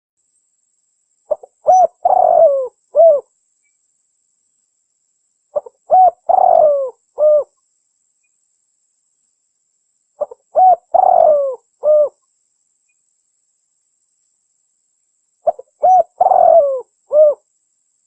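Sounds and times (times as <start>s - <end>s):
dove cooing: 1.3s - 3.2s, 5.6s - 7.5s, 10.2s - 12.2s, 15.4s - 17.4s.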